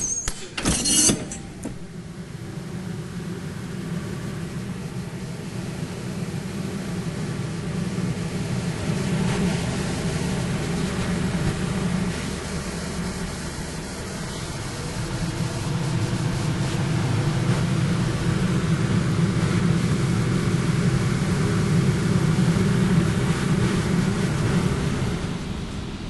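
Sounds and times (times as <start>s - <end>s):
ship engines droning: 0.0s - 26.0s.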